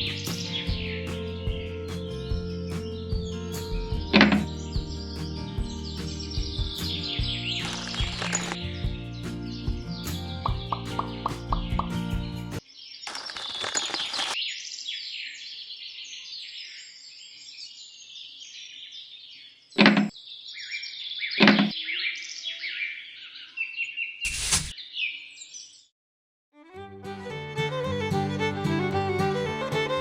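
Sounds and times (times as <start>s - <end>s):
small birds chirping: 0.0s - 25.9s
short hiss burst: 24.3s - 24.7s.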